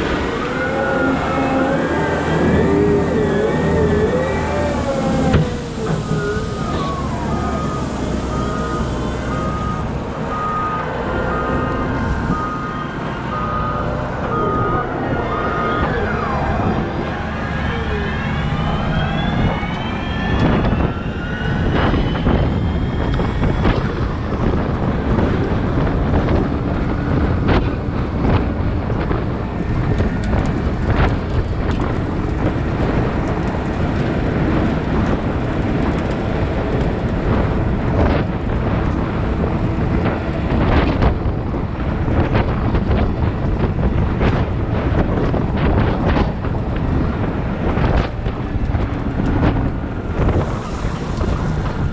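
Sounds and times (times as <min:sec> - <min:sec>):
machine whining: 0:00.0 - 0:24.2
wheel loader engine running: 0:00.0 - 0:51.9
reversing alarm beeping: 0:00.3 - 0:16.9.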